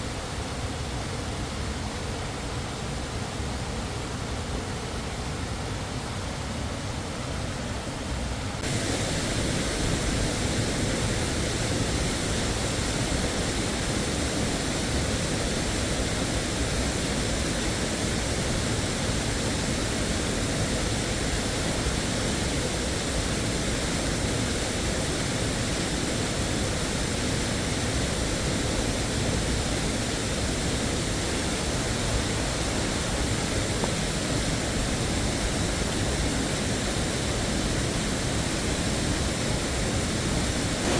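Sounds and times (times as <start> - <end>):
waterfall roaring: 8.6 - 40.9.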